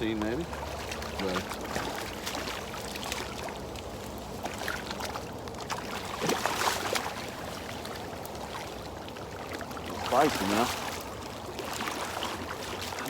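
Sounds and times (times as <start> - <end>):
fish splashing in water: 0.0 - 13.0.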